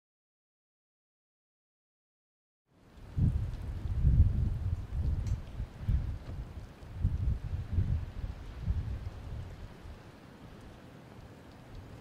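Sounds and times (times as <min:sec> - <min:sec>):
wind buffeting microphone: 0:02.9 - 0:12.0.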